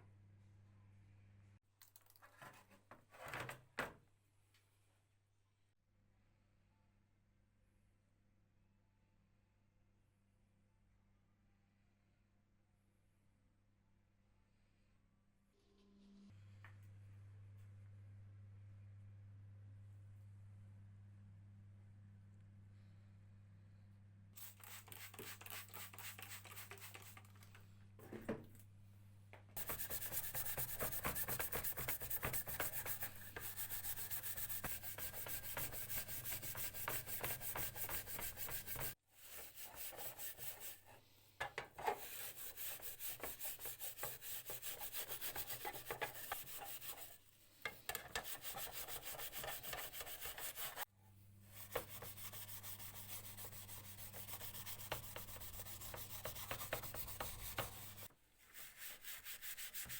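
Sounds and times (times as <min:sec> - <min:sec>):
hand sanding strokes: 0:24.4 - 0:27.2, 0:29.6 - 0:41.0, 0:41.8 - 0:59.9.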